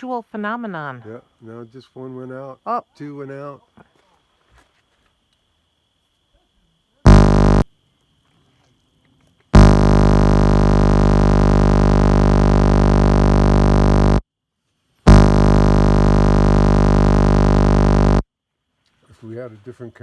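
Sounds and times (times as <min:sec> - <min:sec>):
low electronic buzz: 0:07.1 - 0:07.7, 0:09.6 - 0:14.2, 0:15.1 - 0:18.2.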